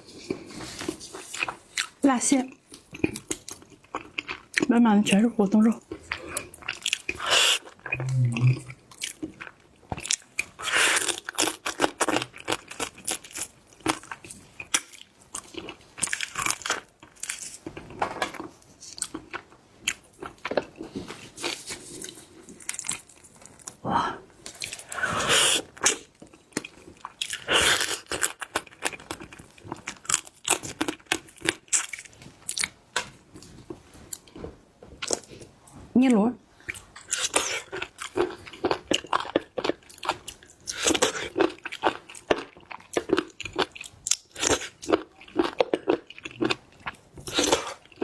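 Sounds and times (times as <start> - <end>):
crab shell crunching and chewing: 5.8 - 23.8, 24.5 - 33.1, 36.7 - 48.0.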